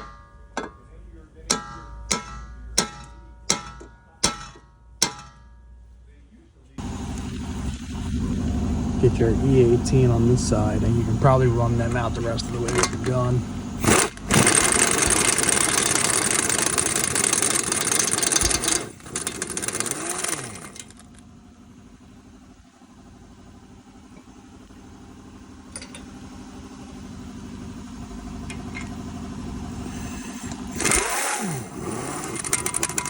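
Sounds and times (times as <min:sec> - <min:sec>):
steady hum: 0:00.0 - 0:21.1
impact gun spinning: 0:12.2 - 0:13.2, 0:13.8 - 0:21.2, 0:29.9 - 0:33.0.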